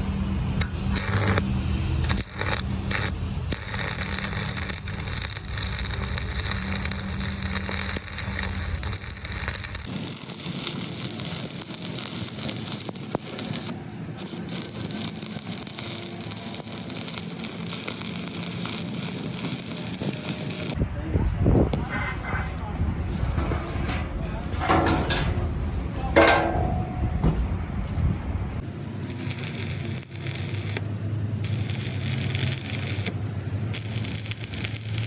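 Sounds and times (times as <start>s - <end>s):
low machine hum: 0.0s - 10.8s, 19.8s - 35.0s
metal scraping and crackling: 0.6s - 20.8s, 21.9s - 27.2s, 29.0s - 35.0s.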